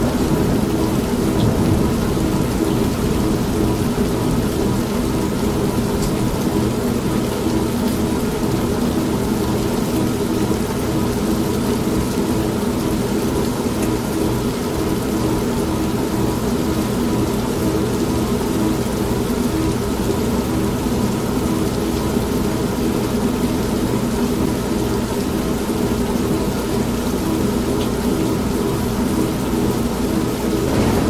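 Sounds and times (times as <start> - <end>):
low thunder rumble: 0.0 - 7.9, 30.6 - 31.0
constant rain: 0.0 - 31.0.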